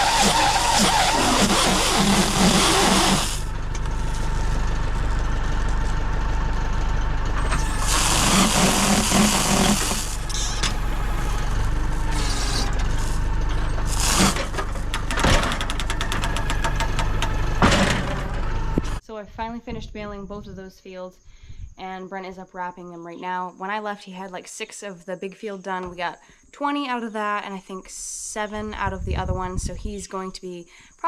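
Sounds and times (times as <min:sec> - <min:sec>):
hiss: 0:00.0 - 0:03.5, 0:07.6 - 0:10.6, 0:13.9 - 0:14.6
vehicle engine idling: 0:00.0 - 0:19.0.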